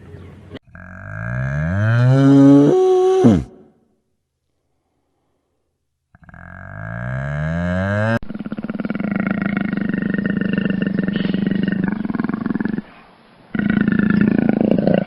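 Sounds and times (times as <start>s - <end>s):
animal pulsing roar: 6.2s - 12.9s, 13.5s - 15.0s.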